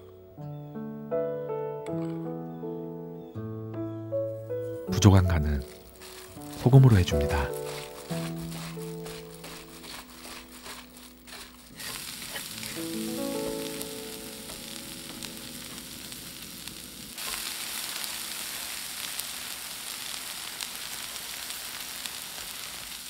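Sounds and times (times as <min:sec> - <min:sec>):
chopsticks stirring: 0:04.8 - 0:15.8
vegetables sizzling in a pan: 0:05.3 - 0:23.0.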